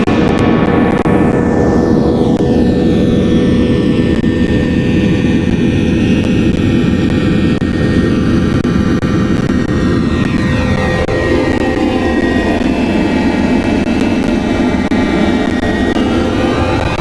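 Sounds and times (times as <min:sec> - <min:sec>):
jet airliner engines roaring: 0:00.0 - 0:17.0.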